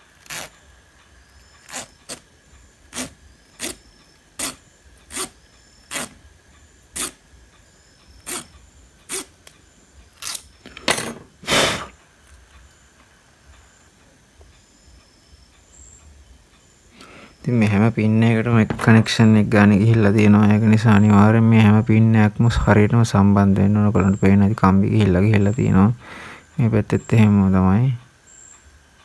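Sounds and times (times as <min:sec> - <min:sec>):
tool scraping metal pins: 0:01.6 - 0:02.2, 0:02.9 - 0:06.2, 0:06.9 - 0:07.2, 0:08.2 - 0:09.5, 0:18.3 - 0:19.6.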